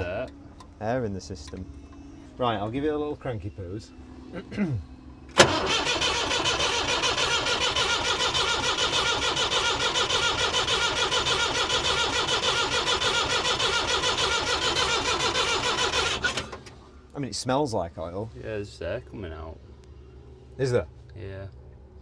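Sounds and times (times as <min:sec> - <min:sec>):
diesel engine cranking on starter: 0:05.3 - 0:16.9.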